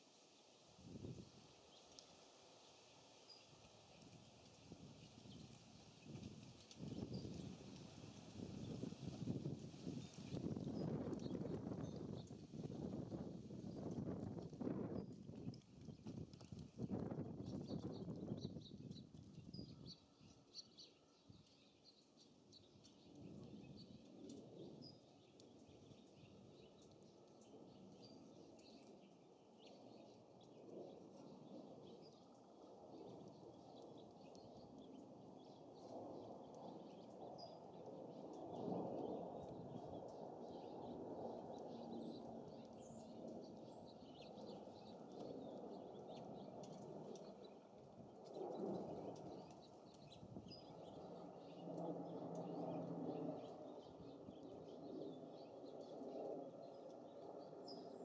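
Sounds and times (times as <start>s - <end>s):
songbirds chirping: 3.2s - 58.0s
low wind rumble: 4.7s - 20.4s, 31.2s - 58.0s.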